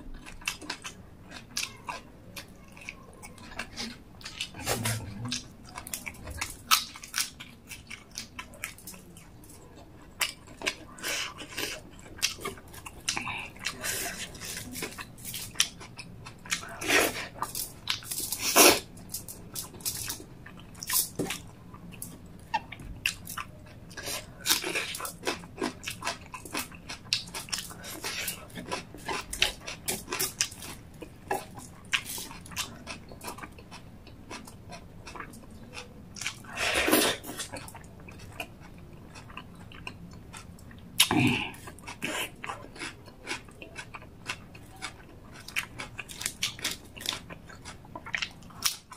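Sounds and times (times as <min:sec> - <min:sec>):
wet chewing and lip smacking: 0:00.2 - 0:48.9.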